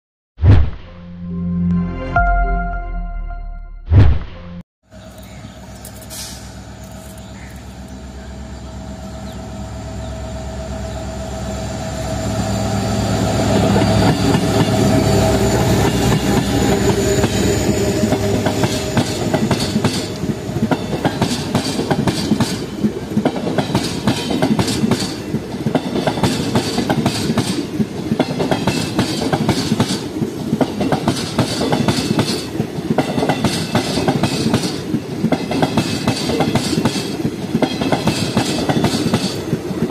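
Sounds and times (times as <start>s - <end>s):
train passing: 4.9s - 39.9s
wheels clickety-clack: 13.6s - 39.9s.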